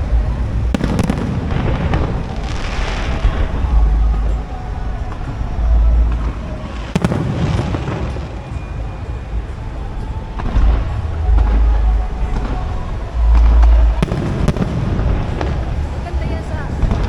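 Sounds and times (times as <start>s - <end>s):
fireworks booming: 0.0s - 17.0s
fireworks crackling: 0.0s - 17.0s
music playing: 0.0s - 17.0s
firework sharp crack: 0.7s - 3.8s, 6.2s - 11.2s, 13.4s - 17.0s.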